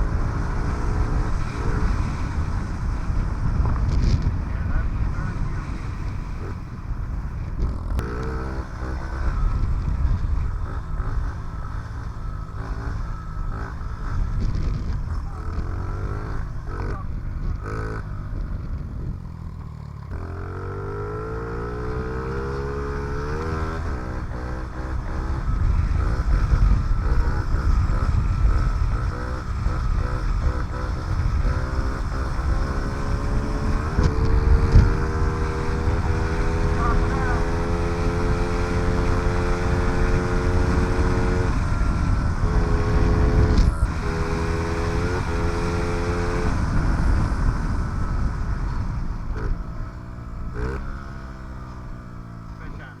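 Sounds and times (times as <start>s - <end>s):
small motorcycle engine revving: 0.0s - 53.0s.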